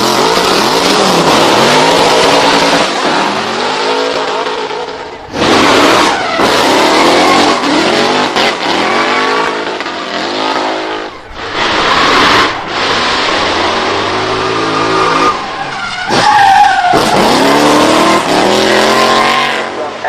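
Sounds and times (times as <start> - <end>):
car engine revving hard: 0.0 - 15.4, 16.1 - 20.0
tyres squealing: 11.1 - 18.2.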